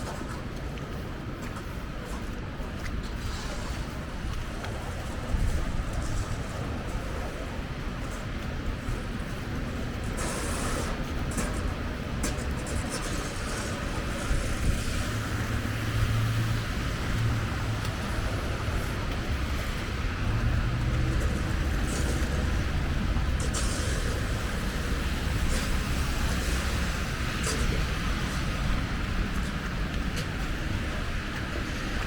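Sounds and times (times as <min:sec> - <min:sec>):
vehicles passing: 0:00.0 - 0:32.0
tyre hiss: 0:10.2 - 0:11.0
low engine hum: 0:10.8 - 0:32.0.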